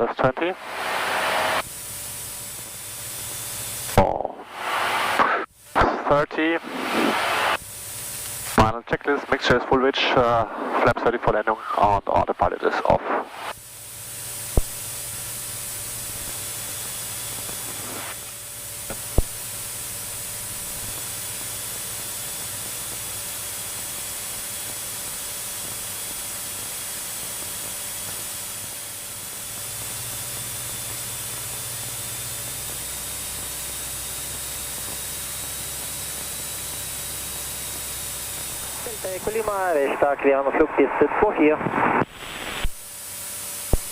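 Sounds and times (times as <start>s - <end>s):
faint muffled aircraft engine: 0.0s - 43.9s
cockpit audio hiss: 38.5s - 42.8s.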